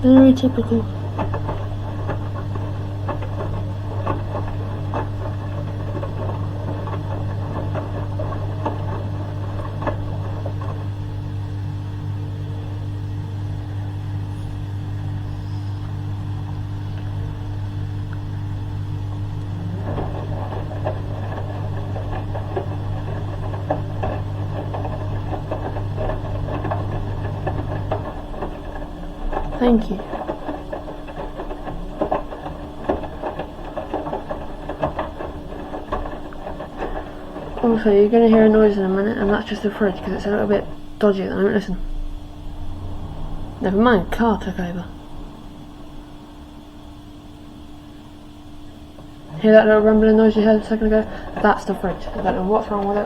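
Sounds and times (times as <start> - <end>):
faint irregular ticks: 0.0 - 13.4, 48.6 - 53.0
machine clicks and knocks: 0.0 - 45.7, 48.6 - 53.0
drain pump humming: 0.0 - 53.0.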